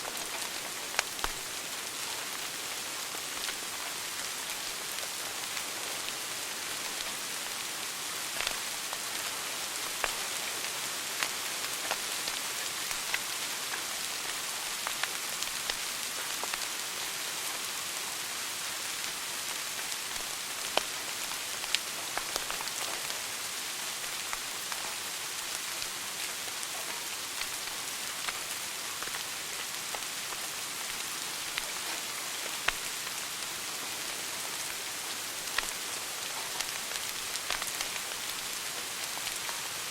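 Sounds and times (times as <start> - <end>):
wood fire crackling: 0.0 - 17.6, 18.8 - 39.9
fire popping: 27.3 - 29.3.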